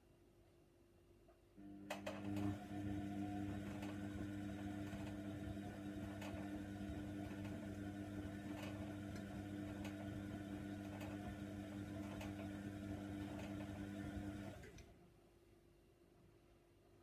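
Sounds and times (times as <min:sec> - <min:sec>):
washer dryer motor hum: 0:01.6 - 0:14.9.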